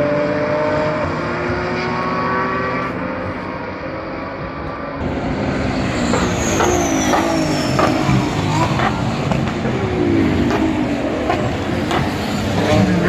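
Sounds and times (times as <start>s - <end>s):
race car engines passing: 0.0s - 13.0s
sharp exhaust pops: 5.8s - 13.0s.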